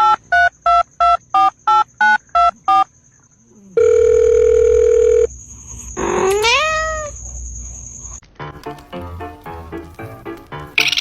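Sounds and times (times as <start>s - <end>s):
telephone ring tone: 3.8s - 5.3s
cat meowing: 6.0s - 7.2s.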